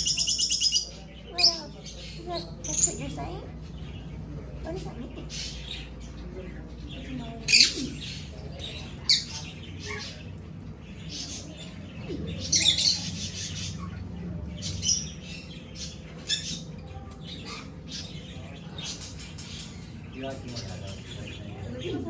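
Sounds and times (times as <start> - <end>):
parrots squawking: 0.0 - 3.3, 7.4 - 21.4.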